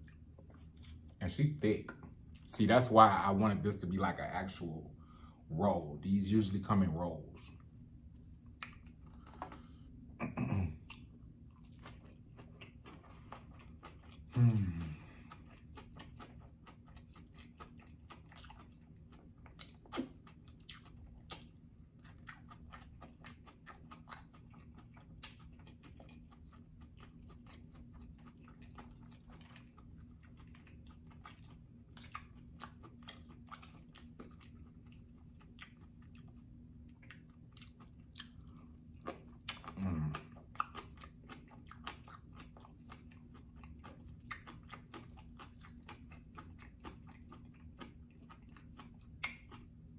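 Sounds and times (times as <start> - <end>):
close chewing with wet mouth clicks: 10.8 - 14.4, 15.1 - 49.9.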